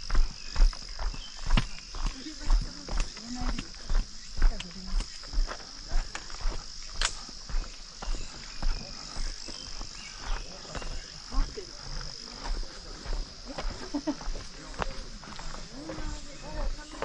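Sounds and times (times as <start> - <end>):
footsteps on a trail: 0.0 - 17.0
high-pitched insect drone: 0.0 - 17.0.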